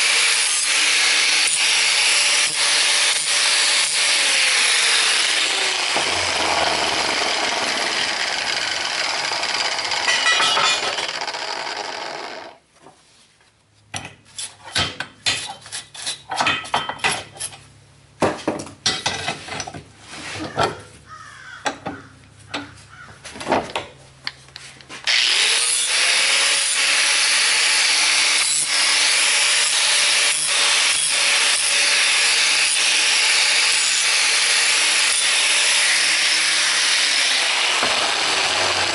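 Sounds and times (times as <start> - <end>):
power grinder on steel: 0.0 - 12.6, 25.1 - 38.9
metal clanks and knocks: 10.0 - 11.1, 13.9 - 17.6, 18.2 - 20.9.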